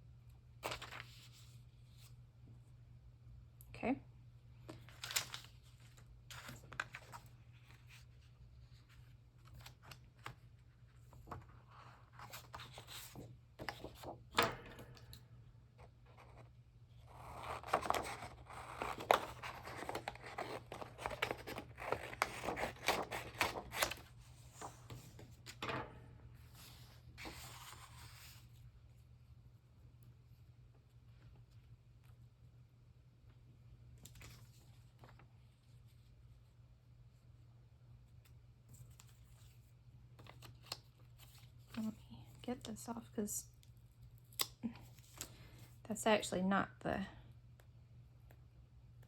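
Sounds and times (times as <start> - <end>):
paper rustling: 0.6 - 2.0, 4.7 - 15.1, 17.1 - 25.6
scissors cutting paper: 17.1 - 24.0.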